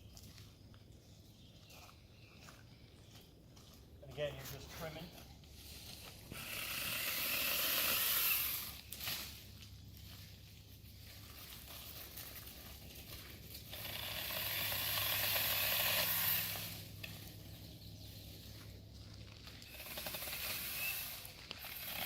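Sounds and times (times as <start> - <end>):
chainsaw cutting branches: 6.2 - 9.5, 13.5 - 17.3, 19.6 - 22.0
electric motor humming: 6.3 - 8.8, 13.7 - 16.9.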